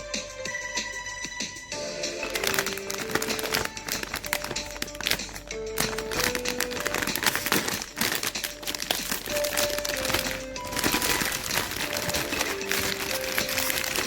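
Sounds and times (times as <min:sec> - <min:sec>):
background music with held notes: 0:00.0 - 0:14.0
plastic wrappers crinkling: 0:02.1 - 0:14.0.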